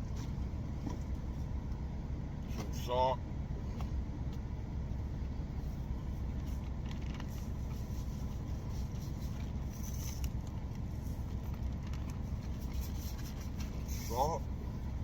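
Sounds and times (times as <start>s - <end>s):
truck engine idling: 0.0s - 15.0s
faint clicks and rustles: 5.6s - 14.2s.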